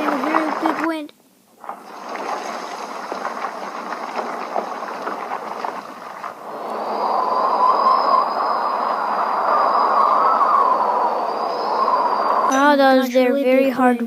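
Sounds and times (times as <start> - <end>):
whooshing wind-like rushing: 1.6 - 12.5.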